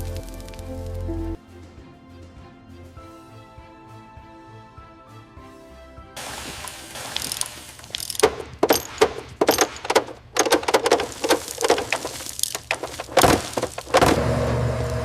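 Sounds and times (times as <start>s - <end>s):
knocks clicks and clatters: 7.1s - 14.6s
steady machine hum: 14.0s - 15.0s.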